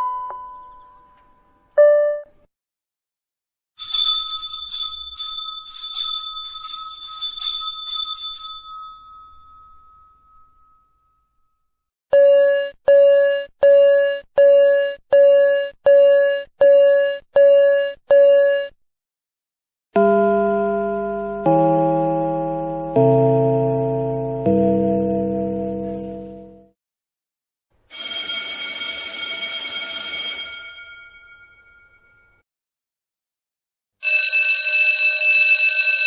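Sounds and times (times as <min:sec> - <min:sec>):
single-tone dings: 0:00.0 - 0:02.3, 0:30.6 - 0:32.4
high-pitched bell ringing rapidly: 0:03.8 - 0:09.9
chime melody: 0:20.0 - 0:26.5.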